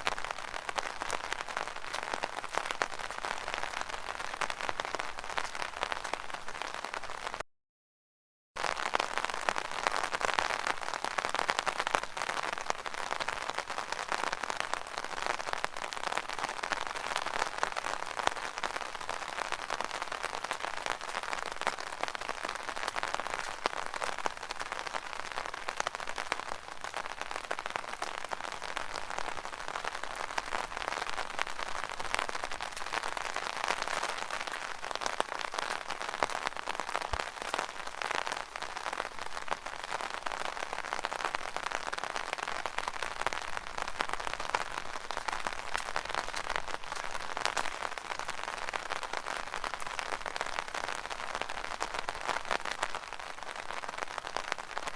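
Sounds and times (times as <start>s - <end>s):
rain pattering on umbrella: 0.0s - 7.4s, 8.6s - 54.9s.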